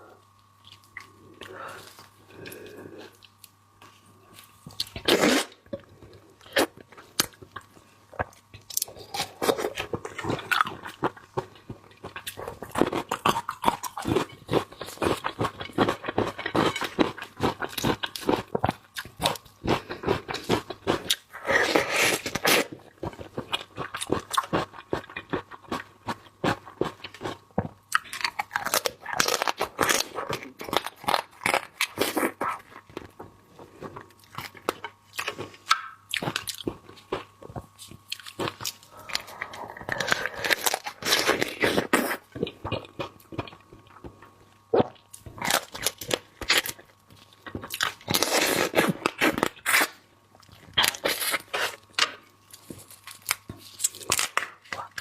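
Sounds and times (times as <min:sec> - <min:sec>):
crisp crunching and chewing: 0:00.2 - 0:55.0.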